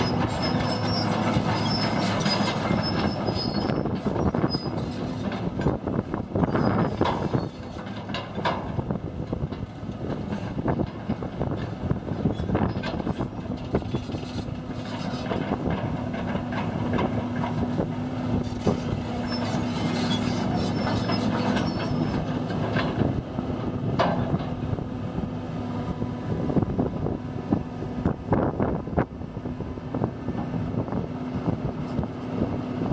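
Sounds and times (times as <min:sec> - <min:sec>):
high squeal: 0:00.0 - 0:05.1, 0:18.6 - 0:22.3
excavator diesel engine hum: 0:00.0 - 0:32.9.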